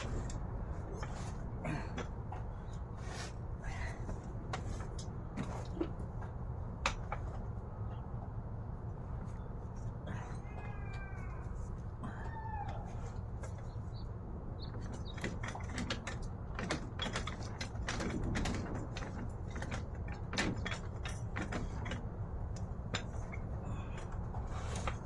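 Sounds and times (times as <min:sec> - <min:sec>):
steady low hum: 0:00.0 - 0:25.0
hand tools clicking and knocking: 0:14.7 - 0:25.0.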